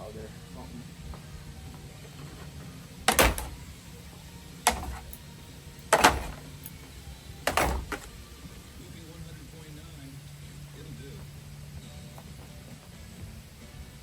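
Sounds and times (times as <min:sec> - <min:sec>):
steady low hum: 0:00.0 - 0:14.0
loud knocks: 0:03.1 - 0:03.7, 0:04.7 - 0:05.2, 0:05.9 - 0:06.5, 0:07.5 - 0:08.1.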